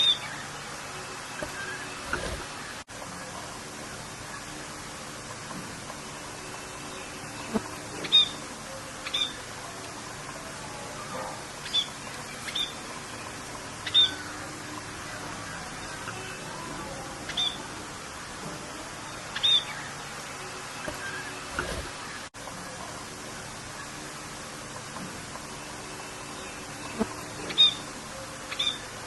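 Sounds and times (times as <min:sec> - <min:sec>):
rain hiss: 0:00.0 - 0:29.0
high bird chirps: 0:07.5 - 0:08.4, 0:09.0 - 0:09.5, 0:11.6 - 0:14.5, 0:17.2 - 0:17.7, 0:19.3 - 0:20.0, 0:26.8 - 0:27.9, 0:28.5 - 0:28.9.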